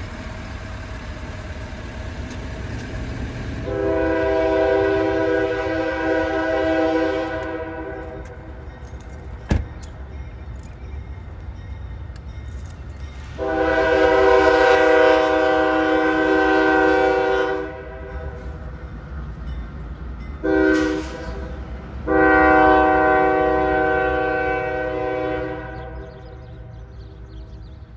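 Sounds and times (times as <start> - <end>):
diesel engine rumble: 0.0 - 27.9
locomotive air horn blasts: 3.6 - 8.3, 13.4 - 18.6, 20.4 - 26.3.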